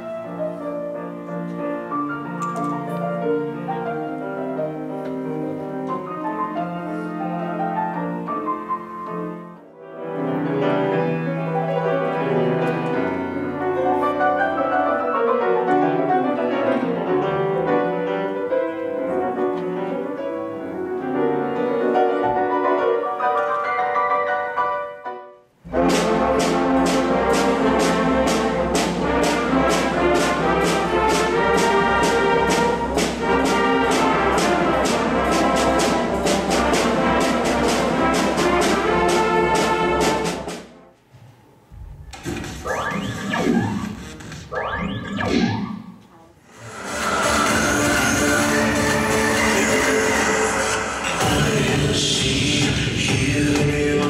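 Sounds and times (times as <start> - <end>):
solo grand piano: 0.0 - 25.4
concert band playing: 25.7 - 40.8, 46.5 - 54.0.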